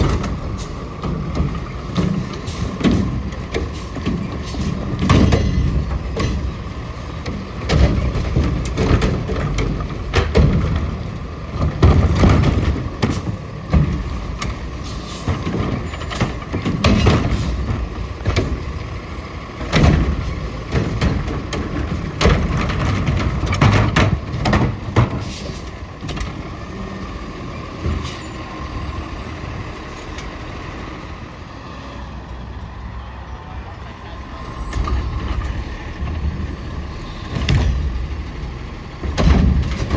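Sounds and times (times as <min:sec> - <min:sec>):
garbage truck engine whining: 0:00.0 - 0:39.9
bangs and clatters: 0:34.7 - 0:39.9.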